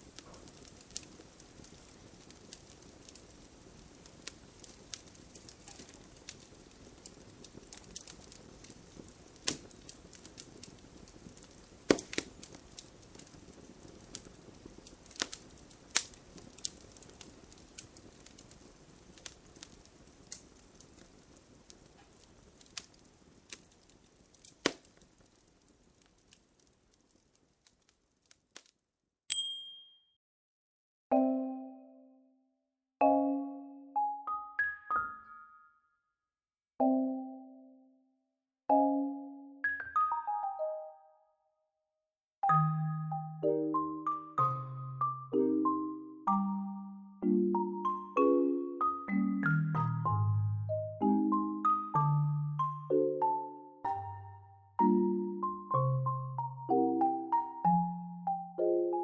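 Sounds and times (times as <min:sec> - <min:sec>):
wood fire crackling: 0:00.0 - 0:28.8, 0:43.6 - 0:53.2, 0:53.8 - 0:58.7
short timer chime: 0:29.3 - 0:30.1.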